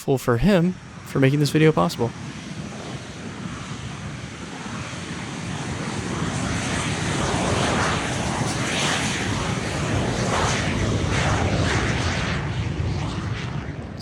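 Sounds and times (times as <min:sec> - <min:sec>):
airplane passing overhead: 0:00.4 - 0:14.0.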